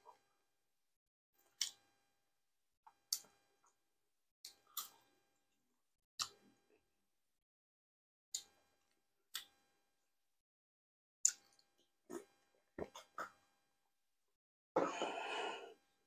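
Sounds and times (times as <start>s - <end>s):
wet mouth clicks and smacks: 11.2s - 11.6s.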